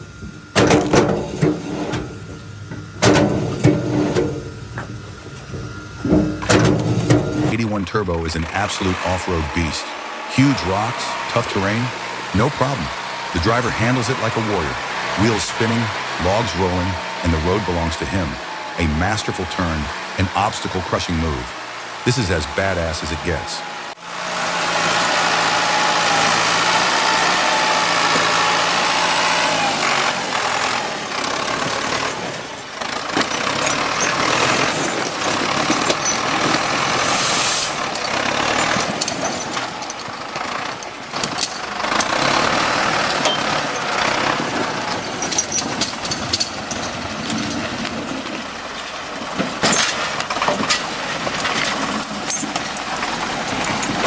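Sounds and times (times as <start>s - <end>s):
heavy vehicle engine under load: 0.0s - 7.6s, 24.1s - 54.0s
knocks and clatter: 0.0s - 7.6s.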